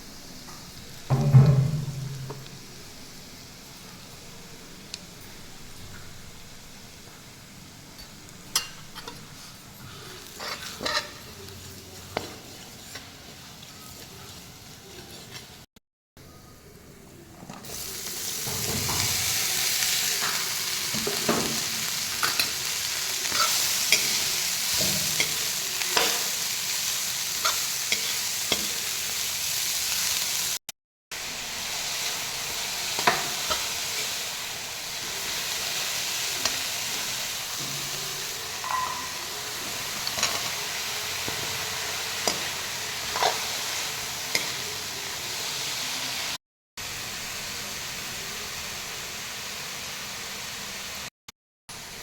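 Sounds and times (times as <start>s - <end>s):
food sizzling in a pan: 0.0s - 15.7s, 17.5s - 51.1s, 51.7s - 52.0s
spatula scraping a pan: 8.6s - 11.4s, 14.9s - 15.6s, 42.2s - 44.6s.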